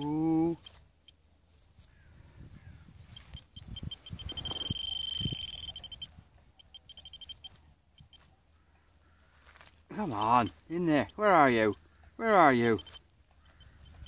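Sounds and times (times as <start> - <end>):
metal detector beeping: 0.0 - 1.4, 3.0 - 8.4, 10.0 - 14.0.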